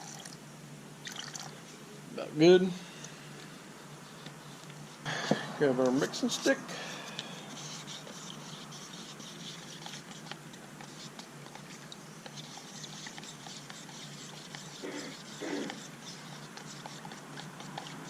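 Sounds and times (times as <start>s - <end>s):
stick scraping in paint cup: 6.2s - 18.0s.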